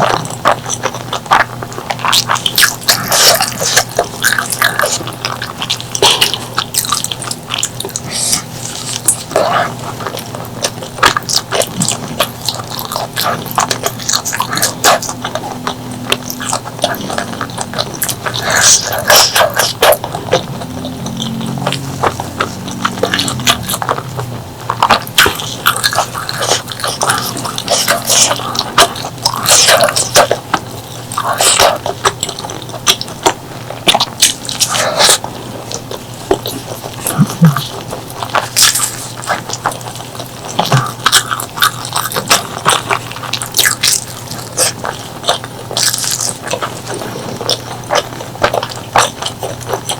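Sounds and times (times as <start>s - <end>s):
wet chewing: 0.0s - 49.9s.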